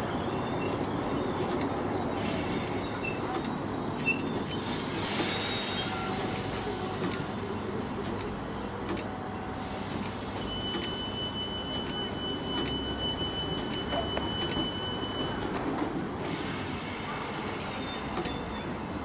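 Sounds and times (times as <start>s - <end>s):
train rumble: 0.0s - 10.6s, 11.8s - 19.0s
air hiss: 4.0s - 7.2s.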